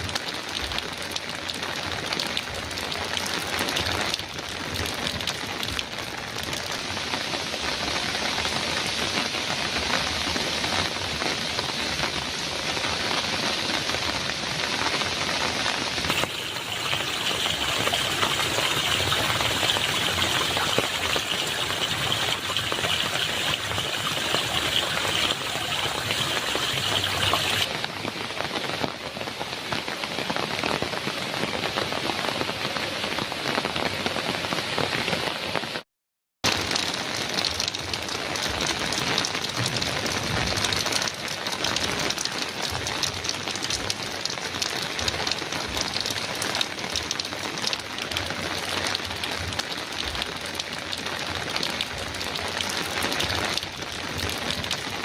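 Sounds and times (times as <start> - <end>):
heavy rain on a metal roof: 0.0 - 35.8, 36.4 - 55.0.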